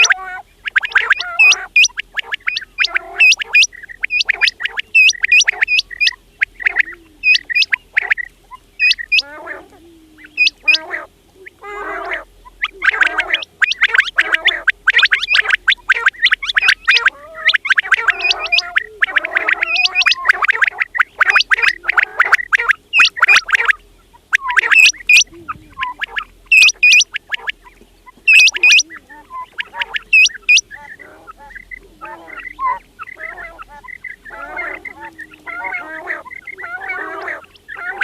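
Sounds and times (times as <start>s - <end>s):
quails chirping: 0.0s - 38.0s
quails churring: 0.0s - 38.0s.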